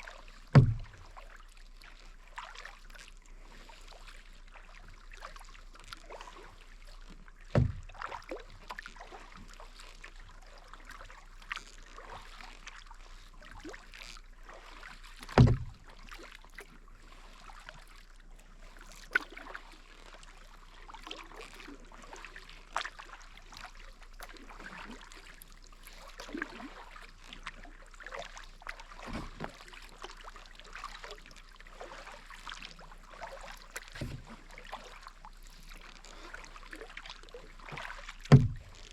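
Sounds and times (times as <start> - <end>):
paddle blades dipping in water: 0.0 - 38.9
water splashing and dripping: 0.4 - 1.3, 7.1 - 9.5, 13.4 - 17.9, 18.6 - 38.9
low thumps: 0.6 - 1.0, 38.3 - 38.8.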